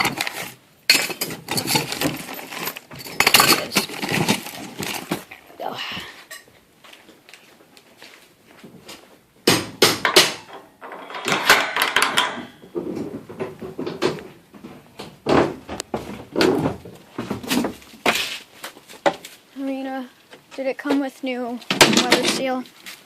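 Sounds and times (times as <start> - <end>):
metal parts knocking and clunking: 0.0 - 5.5, 9.5 - 18.2, 21.6 - 22.6
scraping of parts: 0.0 - 5.5, 10.4 - 14.3.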